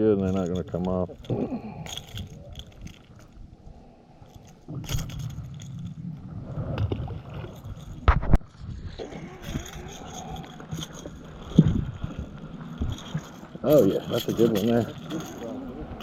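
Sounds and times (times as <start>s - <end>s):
gear scraping against hull: 4.4s - 16.0s.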